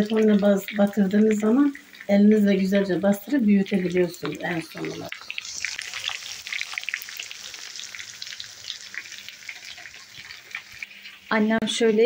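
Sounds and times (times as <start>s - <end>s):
hot oil sizzling: 0.0s - 12.0s
small crackling pops: 3.7s - 11.2s.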